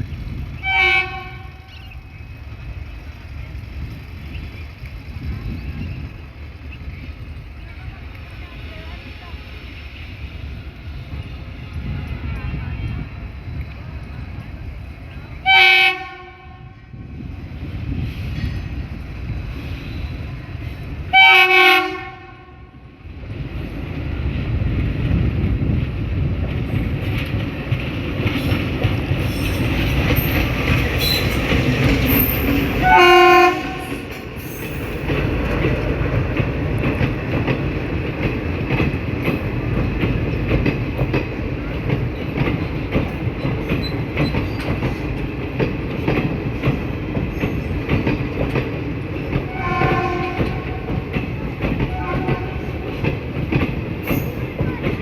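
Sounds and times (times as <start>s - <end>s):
locomotive engine rumble: 0.0s - 21.2s, 21.8s - 55.0s
train horn blast: 0.6s - 1.8s, 15.4s - 17.0s, 21.1s - 22.8s, 32.2s - 34.1s, 49.5s - 51.0s, 51.8s - 52.8s
wheels clacking over rail joints: 26.4s - 55.0s.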